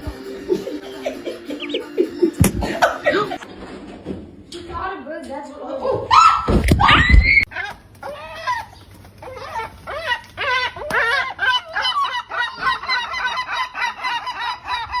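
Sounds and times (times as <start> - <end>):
bird calling: 0.6 - 2.4.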